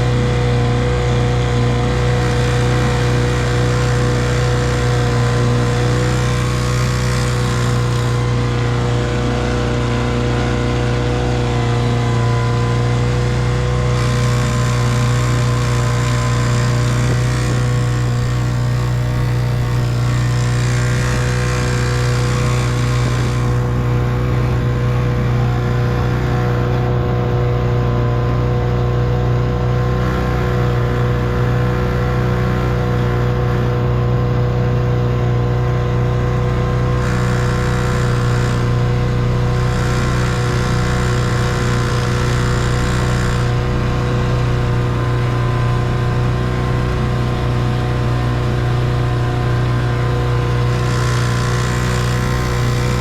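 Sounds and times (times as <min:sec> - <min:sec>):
outboard motor running: 0:00.0 - 0:53.0.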